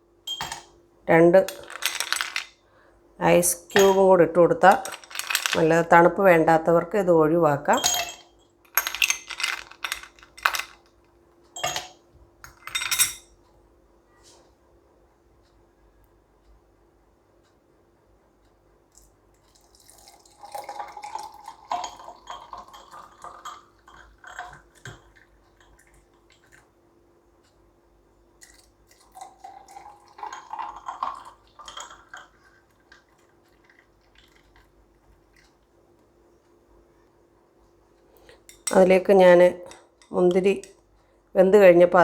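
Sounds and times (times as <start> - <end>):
faint steady hum: 0.0 - 42.0
glasses clinking: 0.3 - 0.8, 1.4 - 2.5, 3.6 - 5.9, 7.7 - 10.8, 11.6 - 13.3, 20.5 - 25.1
juice pouring into glasses: 19.5 - 25.8, 28.4 - 34.7.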